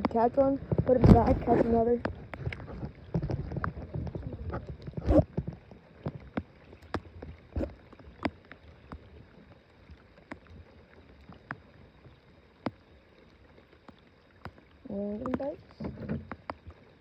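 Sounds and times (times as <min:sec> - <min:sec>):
knock and rumble in boat: 0:00.0 - 0:09.4, 0:13.9 - 0:17.0
rain tapping on a boat: 0:00.0 - 0:17.0.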